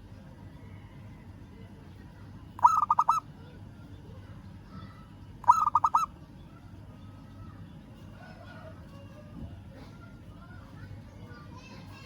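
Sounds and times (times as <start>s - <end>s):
dove cooing: 2.6s - 3.2s, 5.4s - 6.1s.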